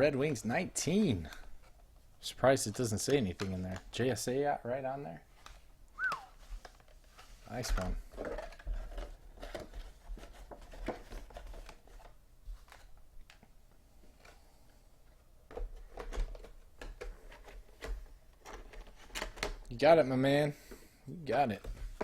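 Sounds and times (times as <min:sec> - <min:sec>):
packaging rustling and clicking: 0:05.4 - 0:13.5, 0:15.4 - 0:19.7.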